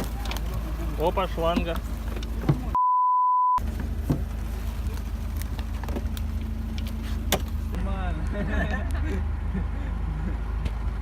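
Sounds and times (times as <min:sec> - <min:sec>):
steady beep tone: 0:02.8 - 0:03.6
engine low drone: 0:03.6 - 0:11.0.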